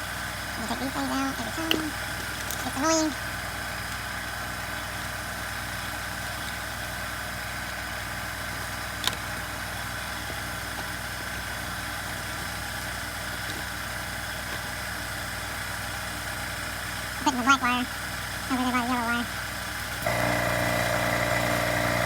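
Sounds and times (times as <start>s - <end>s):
motor humming: 19.9s - 22.0s.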